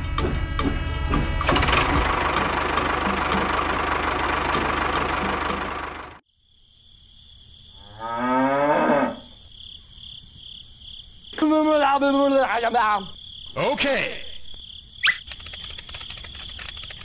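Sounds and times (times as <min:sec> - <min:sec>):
crickets chirping: 0:06.2 - 0:17.0
cow mooing: 0:07.8 - 0:09.3.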